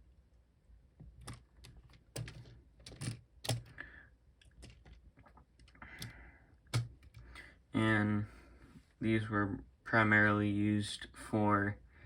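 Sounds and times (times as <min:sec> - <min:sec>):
plastic bricks clicking: 0:01.1 - 0:03.8, 0:04.4 - 0:05.0.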